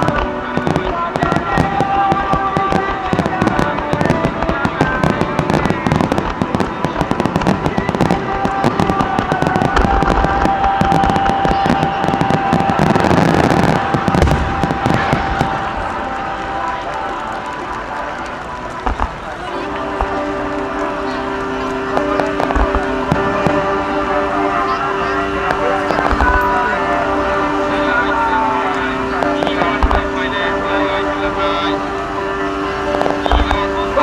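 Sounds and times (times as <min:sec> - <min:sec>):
fireworks crackling and popping: 0:00.0 - 0:34.0.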